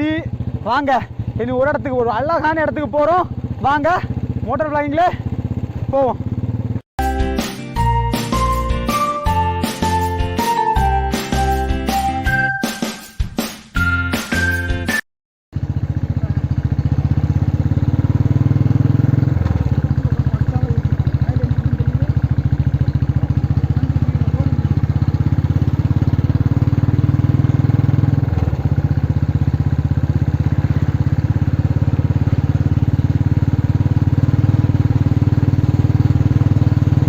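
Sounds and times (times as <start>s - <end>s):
motorcycle engine running: 0.0s - 6.9s, 15.5s - 37.0s.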